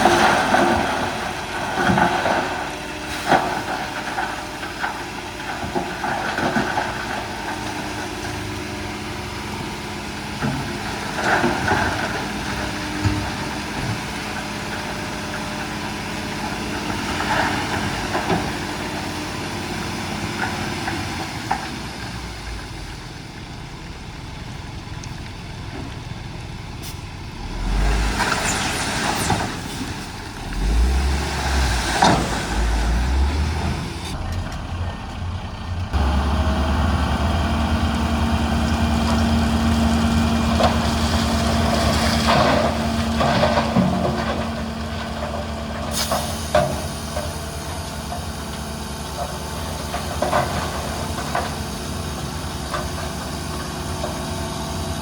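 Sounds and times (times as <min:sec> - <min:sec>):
heavy diesel engines running: 0:00.0 - 0:55.0
hissing and clattering bursts: 0:45.8 - 0:47.5.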